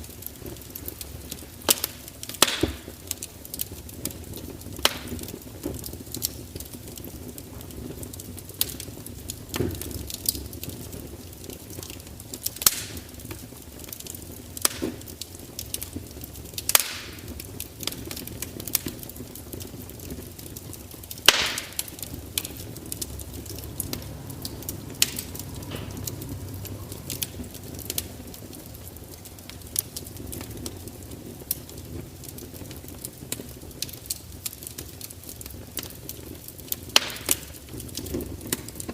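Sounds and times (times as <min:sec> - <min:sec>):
fire crackling and popping: 0:00.0 - 0:38.9
low steady rumble: 0:19.7 - 0:34.4.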